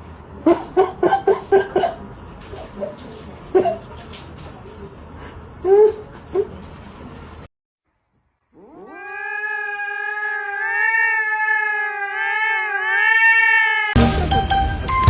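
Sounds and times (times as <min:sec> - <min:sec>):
cat yowling: 0:08.6 - 0:14.0.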